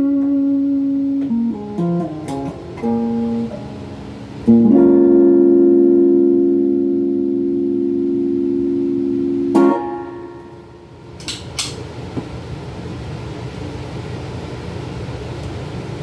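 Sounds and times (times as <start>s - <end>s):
electric guitar chord ringing: 0.0s - 11.7s
amplifier hiss and hum: 0.0s - 16.0s.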